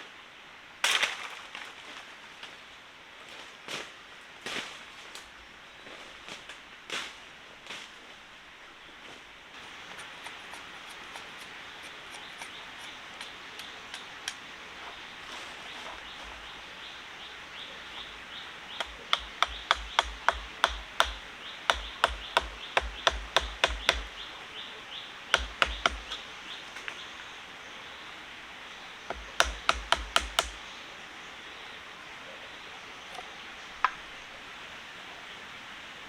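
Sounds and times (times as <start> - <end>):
steady background hiss: 0.0 - 36.0
hammering on wood: 18.8 - 24.2, 25.3 - 26.2, 29.1 - 30.6.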